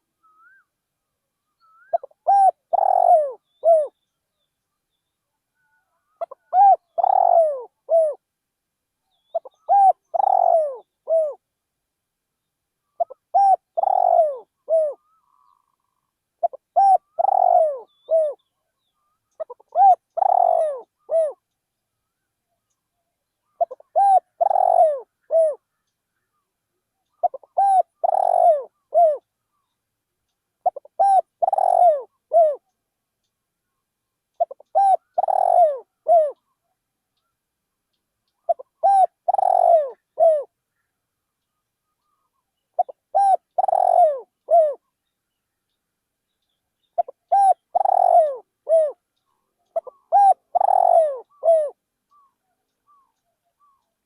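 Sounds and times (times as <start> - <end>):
dove cooing: 1.7 - 4.0, 5.8 - 8.2, 9.3 - 11.4, 12.9 - 18.4, 19.3 - 21.4, 23.5 - 25.6, 27.1 - 29.3, 30.6 - 32.6, 34.4 - 36.6, 38.4 - 40.5, 42.0 - 44.9, 47.0 - 49.0, 49.6 - 52.3.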